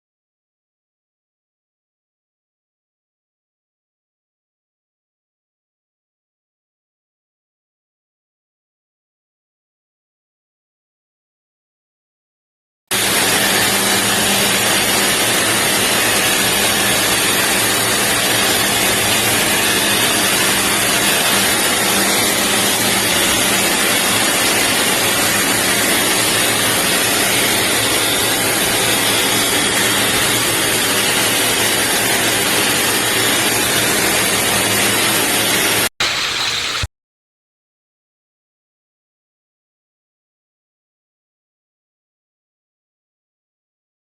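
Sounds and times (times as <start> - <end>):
low motor hum: 12.9 - 35.9
pet dryer blowing air: 12.9 - 36.9.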